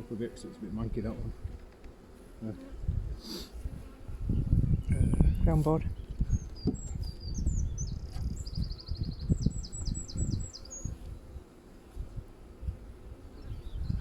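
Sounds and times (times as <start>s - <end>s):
honeybees buzzing: 0.0s - 14.0s
songbird singing: 4.3s - 11.4s, 13.3s - 14.0s.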